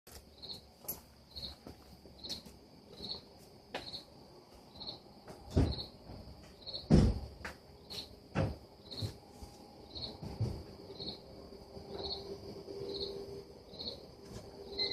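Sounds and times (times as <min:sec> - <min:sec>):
cricket chirping: 0:00.1 - 0:14.9
dull thumps: 0:05.3 - 0:07.6.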